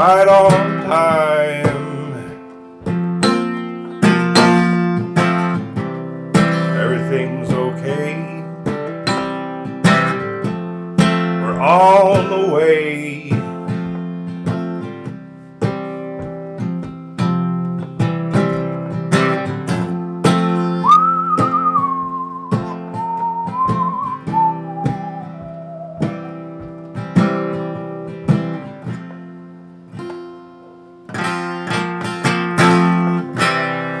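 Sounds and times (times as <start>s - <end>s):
acoustic guitar strumming: 0.0s - 34.0s
whistled melody: 20.6s - 26.9s.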